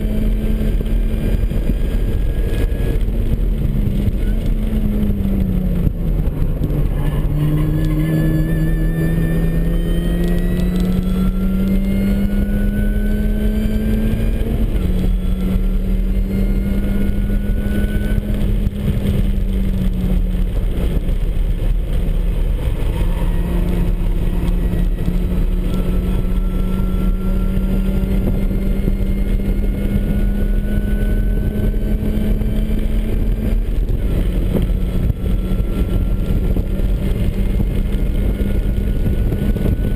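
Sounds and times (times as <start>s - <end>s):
car engine revving: 0.0s - 39.9s
road and wind noise: 0.0s - 39.9s
supercharger whine: 0.0s - 39.9s.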